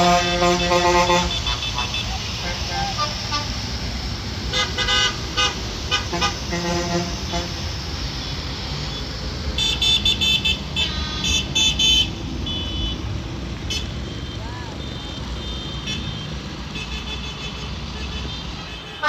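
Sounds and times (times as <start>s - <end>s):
tractor horns tooting: 0.0s - 8.2s, 8.8s - 19.0s
high-pitched horn beeping rapidly: 0.0s - 13.0s
low engine rumble: 0.0s - 15.5s.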